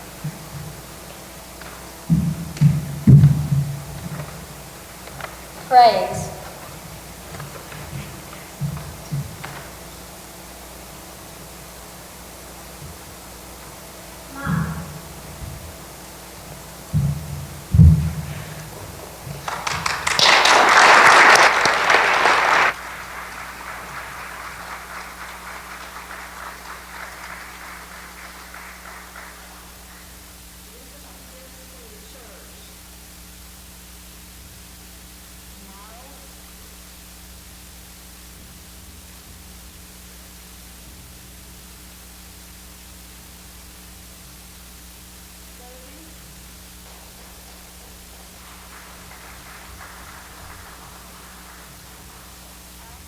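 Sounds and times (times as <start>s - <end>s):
audience applauding: 0.0s - 32.2s, 45.6s - 53.0s
low steady hum: 0.0s - 53.0s
steady hiss: 0.0s - 53.0s.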